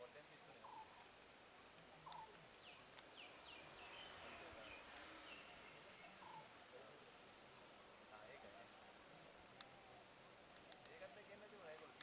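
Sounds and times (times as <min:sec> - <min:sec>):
bird chirps: 0:00.6 - 0:07.1.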